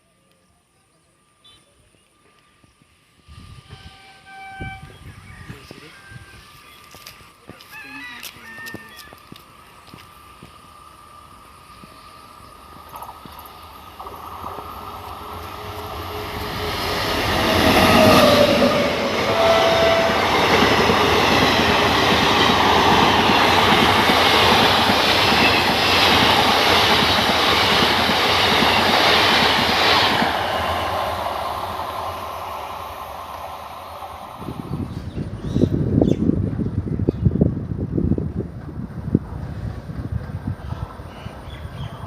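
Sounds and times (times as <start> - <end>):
train wheels clattering on track: 12.6 - 34.5.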